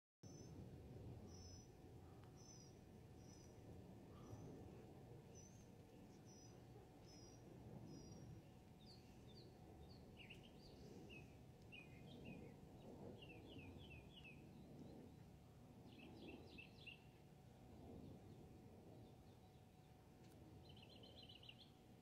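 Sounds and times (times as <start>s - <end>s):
low background rumble: 0.2s - 22.0s
birds chirping: 1.2s - 17.2s, 20.6s - 21.8s.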